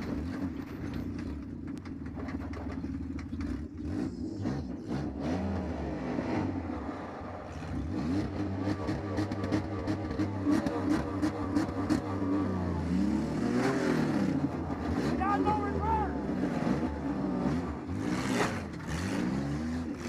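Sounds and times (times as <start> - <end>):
knocks and clatter: 0.0 - 3.9
car engine revving: 3.1 - 20.0.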